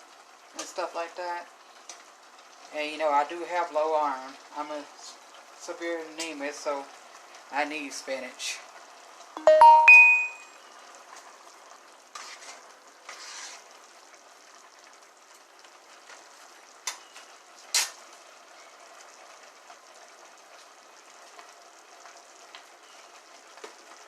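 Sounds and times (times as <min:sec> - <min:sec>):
food sizzling in a pan: 0:00.0 - 0:24.0
stirring scrapes: 0:12.1 - 0:13.8.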